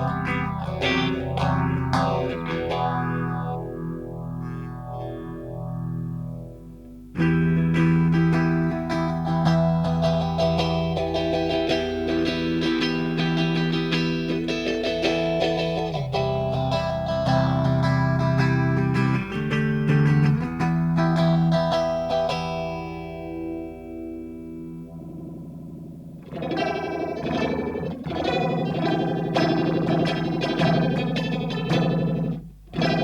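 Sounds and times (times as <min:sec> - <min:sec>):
electric guitar chords with phaser: 0:00.0 - 0:33.0.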